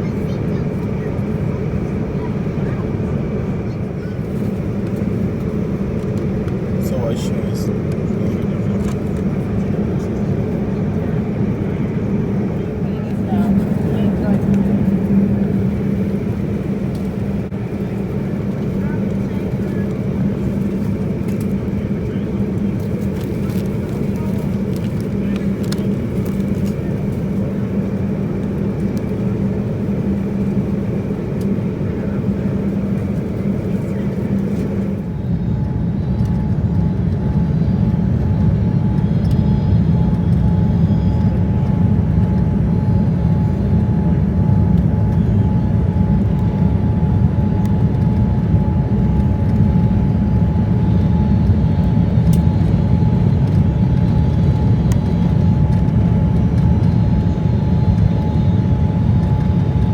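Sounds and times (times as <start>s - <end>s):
jet engine rumble in cabin: 0.0s - 59.9s
steady engine whine: 0.0s - 59.9s.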